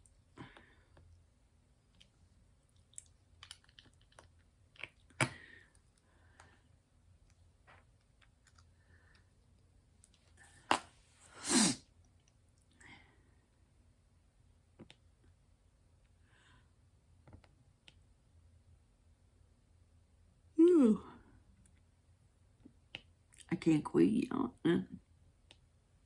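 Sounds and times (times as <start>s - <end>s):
small clicks and taps: 17.2s - 18.0s.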